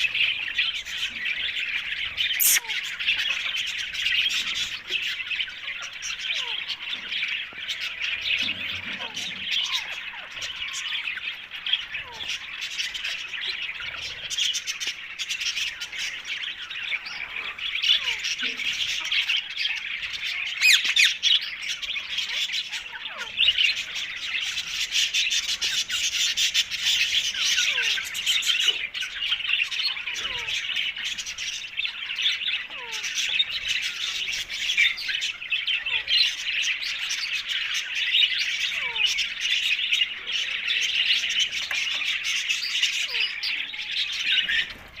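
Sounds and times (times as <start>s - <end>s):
parakeet squawking and chattering: 2.2s - 3.5s, 17.3s - 44.8s.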